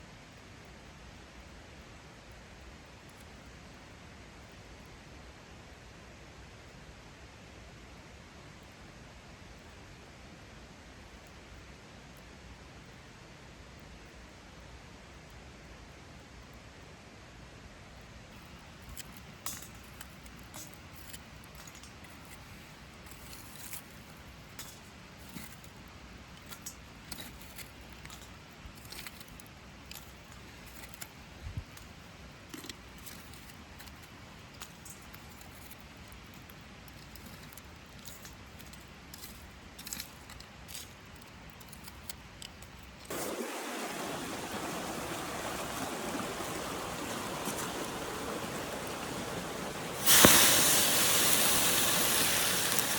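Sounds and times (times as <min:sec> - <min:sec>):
steady rushing hiss: 0:18.3 - 0:41.6, 0:42.6 - 0:52.9
campfire crackling and popping: 0:18.4 - 0:44.1, 0:44.8 - 0:52.9.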